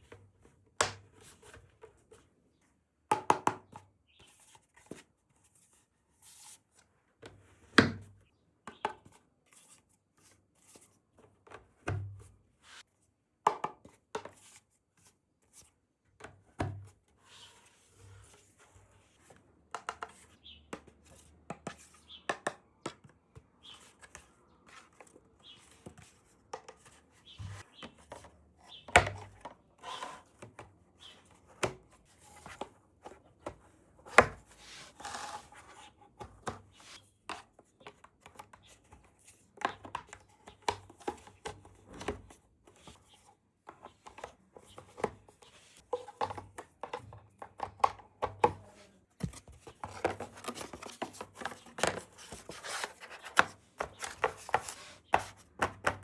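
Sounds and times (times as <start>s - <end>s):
plastic toys tapping and clicking: 43.7s - 56.0s.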